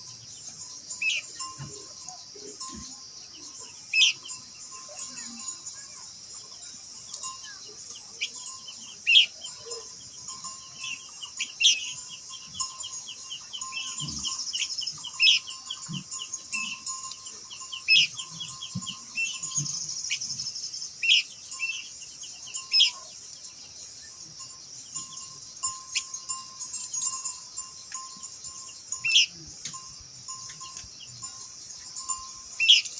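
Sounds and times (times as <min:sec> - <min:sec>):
bird whistling and trilling: 0:32.6 - 0:32.9.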